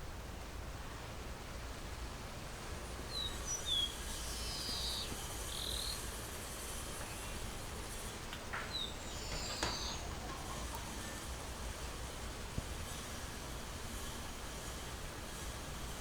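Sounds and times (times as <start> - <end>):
steady background noise: 0.0 - 16.0
birds chirping: 3.1 - 6.1, 7.0 - 11.6.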